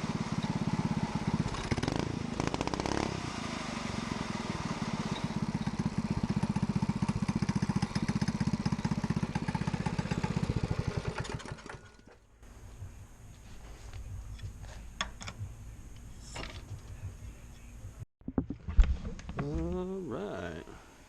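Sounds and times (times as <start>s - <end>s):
go-kart engine putter: 5.0s - 12.2s.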